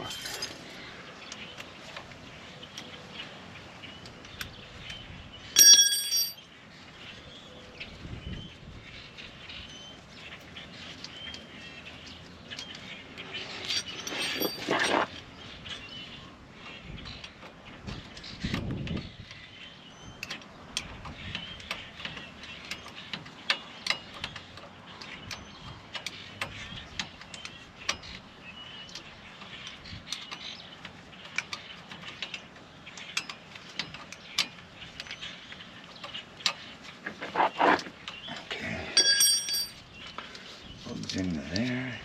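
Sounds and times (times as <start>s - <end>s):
hand tools clicking and knocking: 5.6s - 6.4s, 13.6s - 15.2s, 36.0s - 39.8s
ringing metallic clink: 5.6s - 6.4s, 13.6s - 15.0s, 39.0s - 39.8s.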